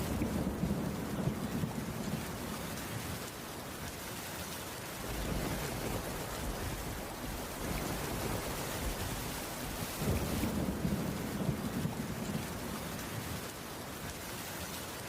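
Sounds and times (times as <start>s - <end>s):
thunder rumbling: 0.0s - 3.3s, 4.9s - 13.6s
heavy rain: 0.0s - 15.0s.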